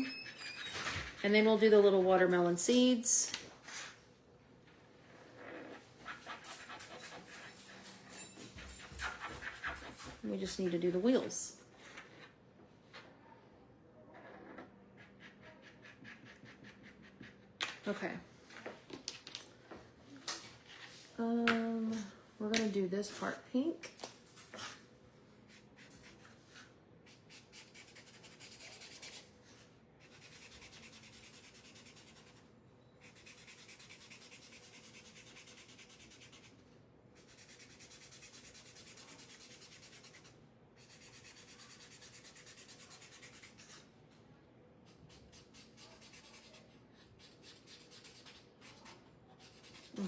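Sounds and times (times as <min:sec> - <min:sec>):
marker tip scratching: 0:44.9 - 0:46.6.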